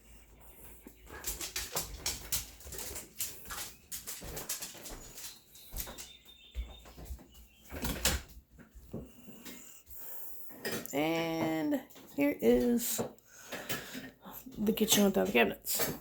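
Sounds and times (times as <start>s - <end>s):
irregular knocks clicks and rustles: 0.8s - 9.7s.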